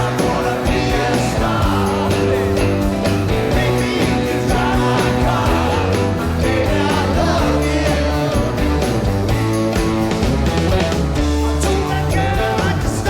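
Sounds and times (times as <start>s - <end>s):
person singing: 0.0s - 8.9s, 11.4s - 13.0s
rock band playing live: 0.0s - 13.0s.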